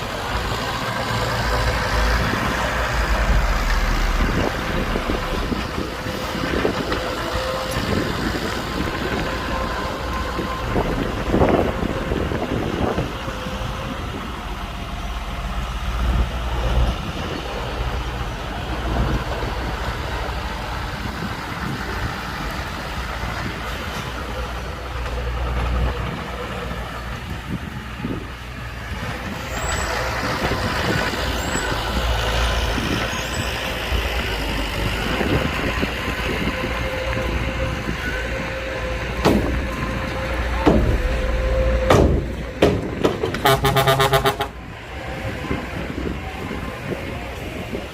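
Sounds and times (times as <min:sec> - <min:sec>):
low diesel engine rumble: 0:00.0 - 0:47.9
metal knocks and clanks: 0:40.6 - 0:43.6.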